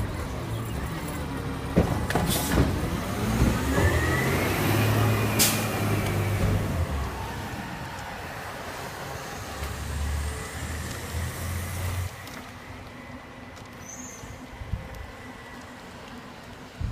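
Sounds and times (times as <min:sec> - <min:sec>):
truck clunks: 0:00.0 - 0:06.9
garbage truck engine: 0:00.0 - 0:16.9.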